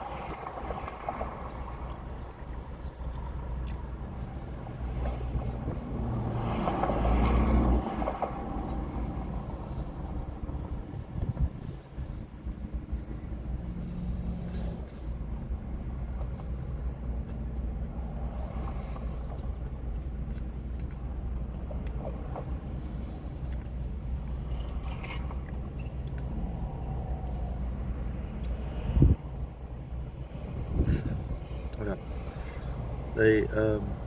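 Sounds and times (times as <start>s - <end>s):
clicks and rustles of eating: 0.2s - 5.5s, 11.6s - 27.7s
low rumble: 8.2s - 34.0s.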